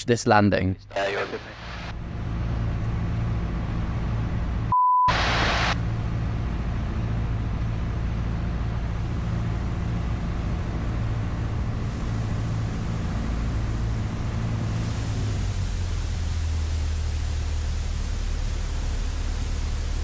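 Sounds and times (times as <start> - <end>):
short pure beep: 4.7 - 5.3
hiss: 11.1 - 20.0.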